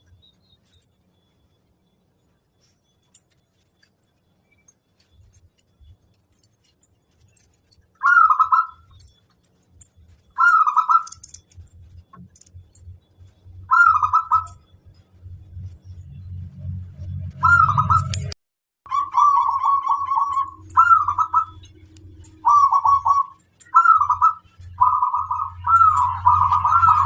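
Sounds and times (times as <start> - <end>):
dove cooing: 8.0 - 8.9, 10.4 - 11.2, 13.7 - 14.6, 17.4 - 18.2, 18.9 - 21.6, 22.3 - 27.0
faint low rumble: 8.7 - 18.4.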